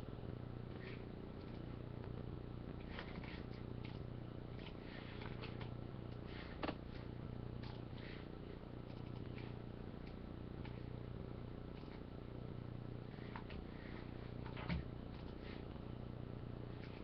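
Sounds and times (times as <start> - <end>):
faint rustles and ticks: 0.0 - 17.0
low electrical hum: 0.0 - 17.0.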